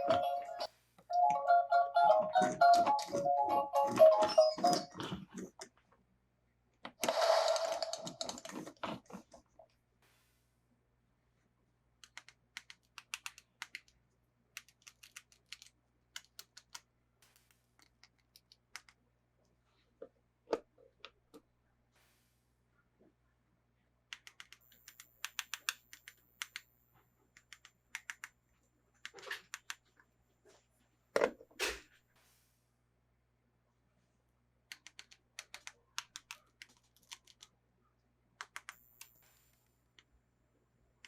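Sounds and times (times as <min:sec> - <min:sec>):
plastic toy parts clicking: 0:07.0 - 0:08.8, 0:12.0 - 0:14.0, 0:14.6 - 0:19.0, 0:24.1 - 0:26.6, 0:27.4 - 0:28.4, 0:34.7 - 0:37.5, 0:38.4 - 0:38.8.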